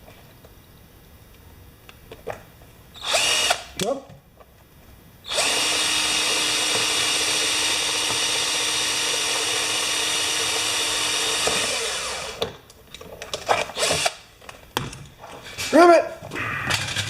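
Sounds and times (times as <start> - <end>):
power drill drilling metal: 3.0 - 3.7, 5.3 - 12.4, 13.7 - 14.2.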